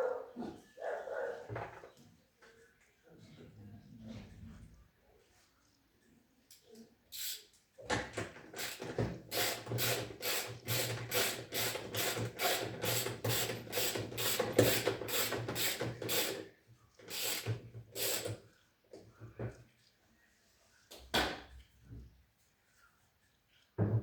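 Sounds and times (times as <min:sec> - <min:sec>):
ratchet wrench clicking: 0:07.2 - 0:07.4, 0:08.6 - 0:16.4, 0:17.1 - 0:18.3.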